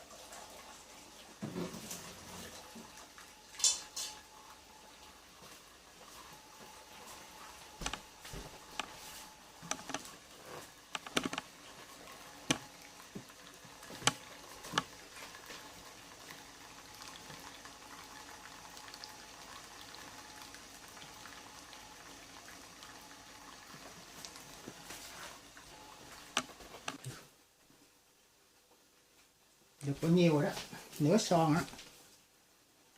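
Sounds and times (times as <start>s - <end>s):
pot boiling bubbling hiss: 0.0s - 32.9s
sharp clicks and knocks: 9.6s - 10.1s, 10.9s - 11.5s.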